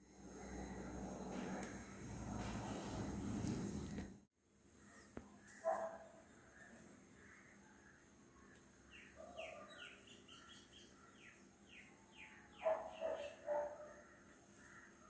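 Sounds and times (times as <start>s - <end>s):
bird chirps: 4.9s - 13.9s.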